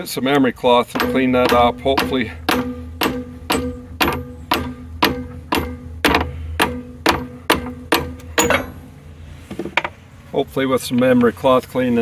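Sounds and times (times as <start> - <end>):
hammer striking metal: 0.9 - 9.1.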